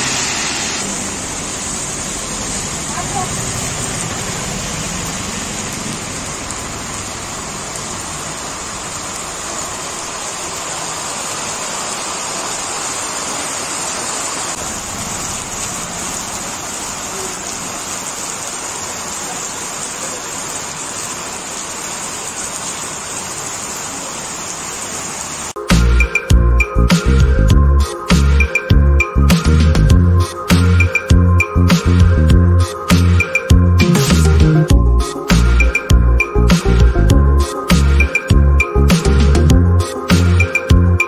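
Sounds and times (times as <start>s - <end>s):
heavy rain splashing on water: 0.0s - 25.6s.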